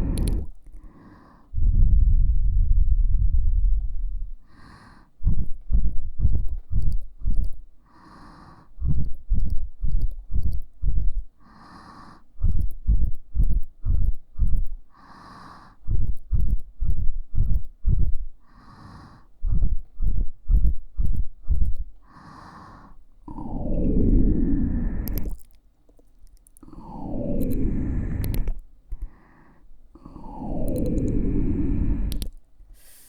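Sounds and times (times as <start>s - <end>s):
breathy puff of air: 26.7s - 33.0s.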